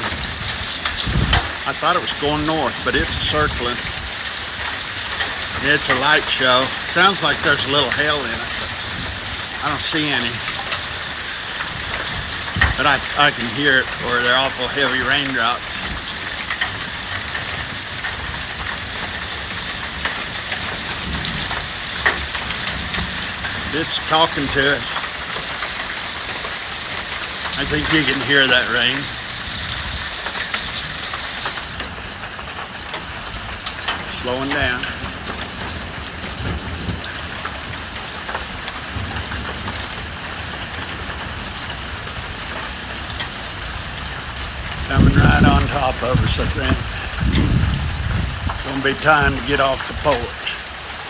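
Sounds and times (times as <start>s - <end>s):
heavy rain falling: 0.0s - 51.0s
sharp ticks of drops: 0.8s - 8.8s.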